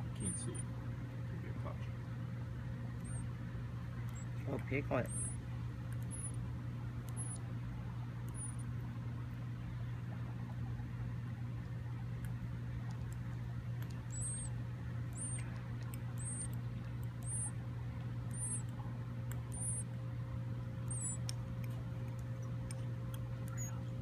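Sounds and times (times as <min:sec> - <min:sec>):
nestling bird peeping: 0:00.0 - 0:00.7, 0:03.0 - 0:03.3, 0:04.0 - 0:05.4, 0:06.0 - 0:06.4, 0:07.1 - 0:07.5, 0:08.3 - 0:08.7, 0:13.9 - 0:17.6, 0:18.2 - 0:18.7, 0:19.3 - 0:19.9, 0:20.7 - 0:21.3, 0:22.4 - 0:24.0
steady low hum: 0:00.0 - 0:24.0.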